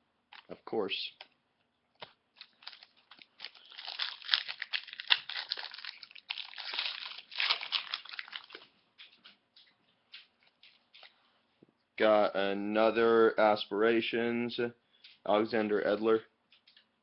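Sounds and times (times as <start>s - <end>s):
packaging crinkling: 2.0s - 9.2s.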